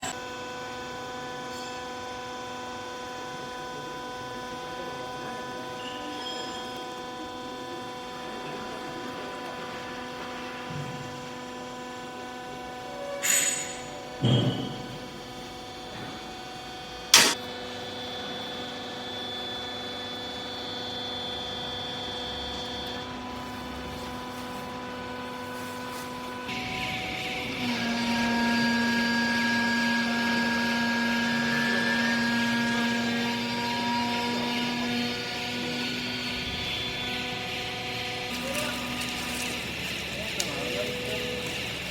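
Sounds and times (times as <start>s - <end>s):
baler motor and pump humming: 0.0s - 41.9s
baler motor humming: 26.3s - 41.9s.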